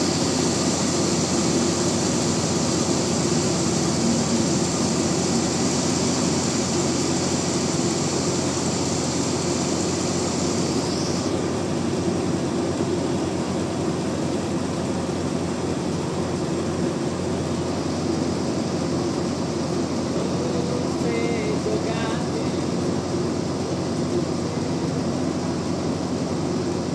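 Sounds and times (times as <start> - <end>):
high hiss: 0.0 - 13.4, 14.6 - 26.9
sawmill machine drone: 0.0 - 26.9.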